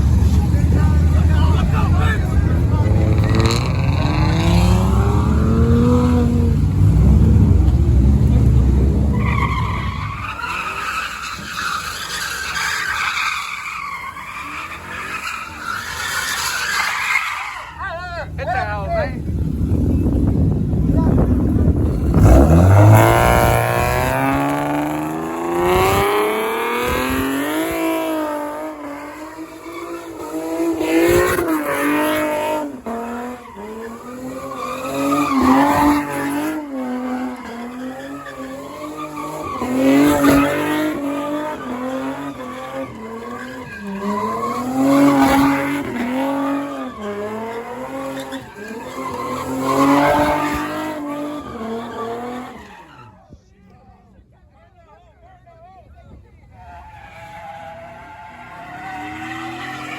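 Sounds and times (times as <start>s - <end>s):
car engine revving: 0.0s - 52.7s
tyres squealing: 9.0s - 18.8s.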